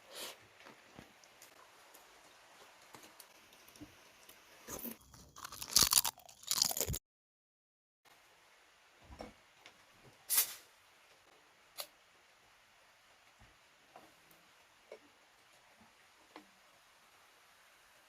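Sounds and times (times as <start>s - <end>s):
crunchy bites and chewing: 4.7s - 7.0s.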